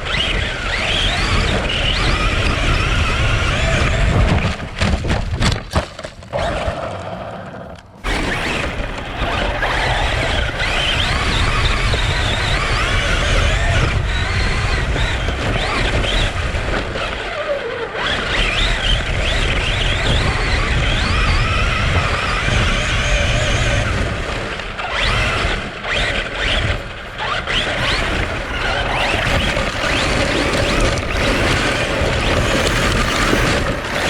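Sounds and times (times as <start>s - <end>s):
wind rumble on microphone: 8.0s - 15.6s, 27.8s - 34.0s
rc car electric motor whining: 8.0s - 15.7s, 27.8s - 34.0s.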